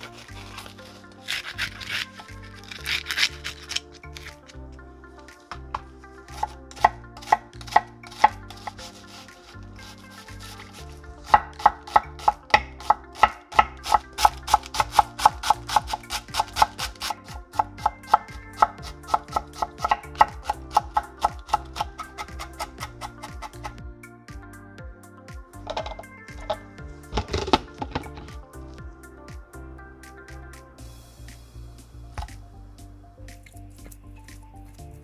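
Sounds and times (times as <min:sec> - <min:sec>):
knife chopping on cutting board: 0:11.3 - 0:23.7.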